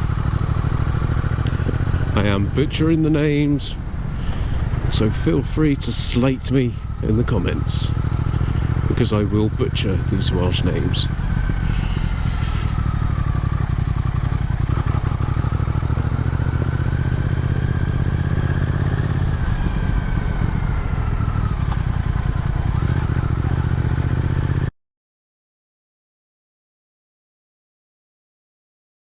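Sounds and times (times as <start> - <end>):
motorcycle engine running: 0.0 - 24.7.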